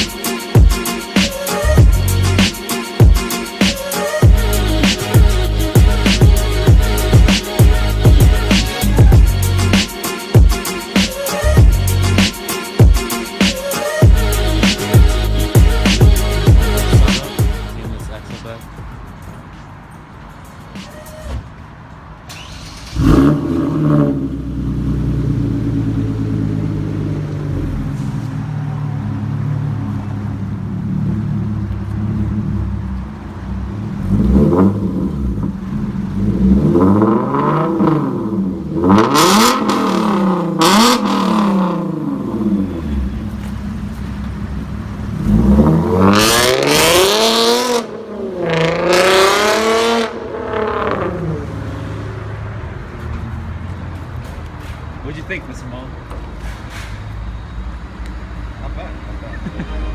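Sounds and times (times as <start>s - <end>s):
car engine starting and revving: 3.2s - 12.4s, 21.2s - 56.6s.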